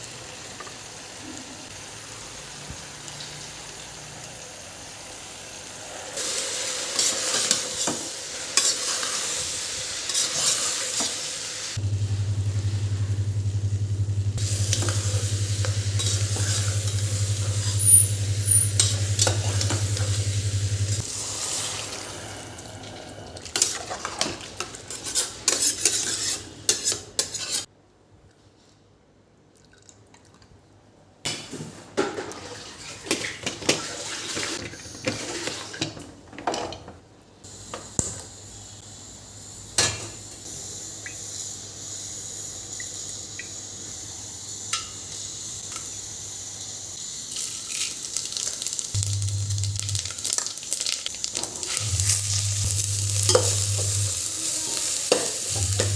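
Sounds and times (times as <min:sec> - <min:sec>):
food sizzling in a pan: 0:00.0 - 0:27.7, 0:37.5 - 0:55.9.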